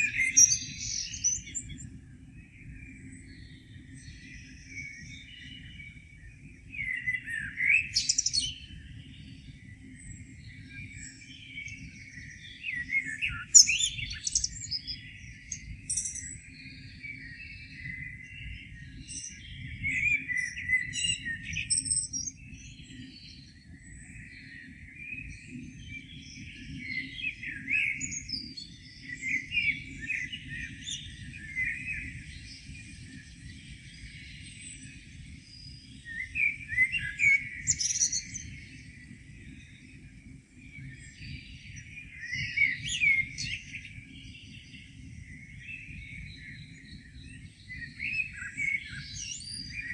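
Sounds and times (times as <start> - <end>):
songbirds singing and chirping: 0.0 - 49.9.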